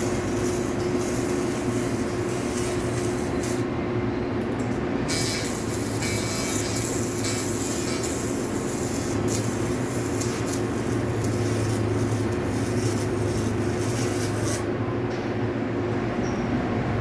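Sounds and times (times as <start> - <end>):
hiss: 0.0 - 3.6, 5.1 - 14.6
machine humming: 0.0 - 14.9.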